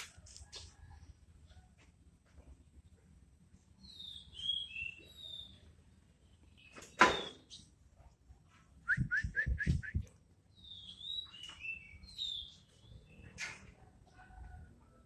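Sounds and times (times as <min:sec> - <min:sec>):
birds whistling downward notes: 0:03.8 - 0:05.7, 0:06.6 - 0:07.7, 0:08.9 - 0:13.4.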